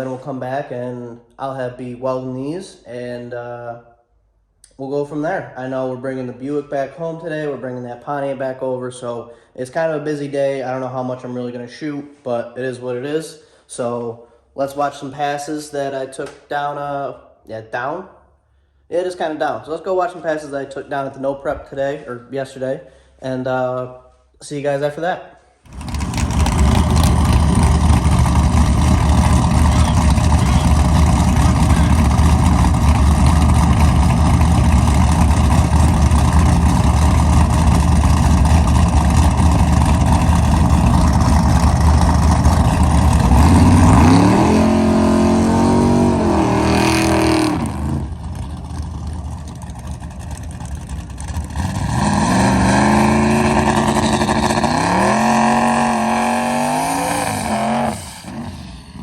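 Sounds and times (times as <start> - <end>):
race car revving through gears: 25.7 - 35.8, 42.0 - 48.4, 51.4 - 58.9
loud engine rumble: 25.7 - 59.0.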